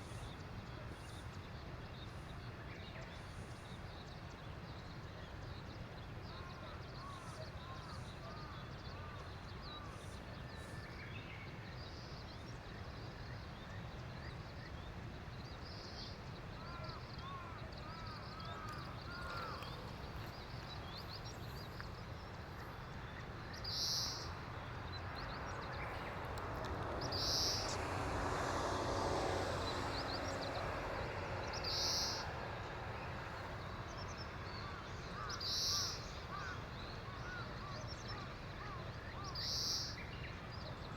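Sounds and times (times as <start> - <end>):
small birds chirping: 16.6 - 40.9.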